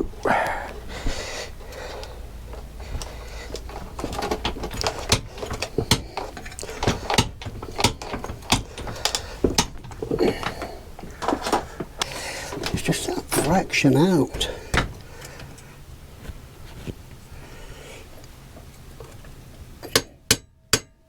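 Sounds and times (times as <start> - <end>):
metal clicks knocks and rattles: 2.5 - 13.7, 14.3 - 15.7.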